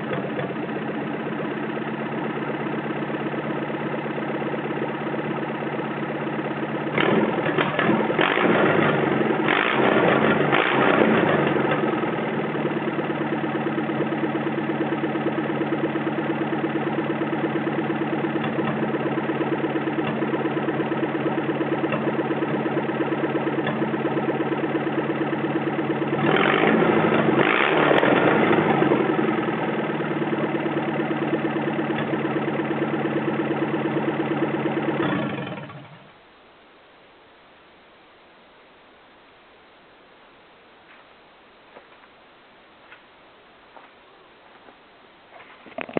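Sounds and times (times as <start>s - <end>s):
engine revving and idling: 0.0s - 36.2s.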